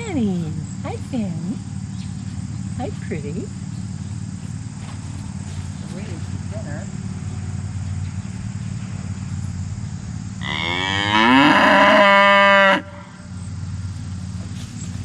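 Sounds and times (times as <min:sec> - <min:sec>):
steady low hum: 0:00.0 - 0:15.0
cow mooing: 0:10.4 - 0:13.3.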